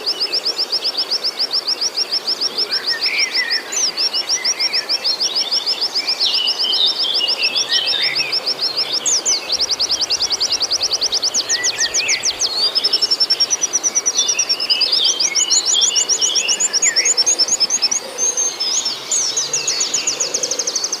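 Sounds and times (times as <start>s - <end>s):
bird chirps and twitters: 5.7s - 21.0s.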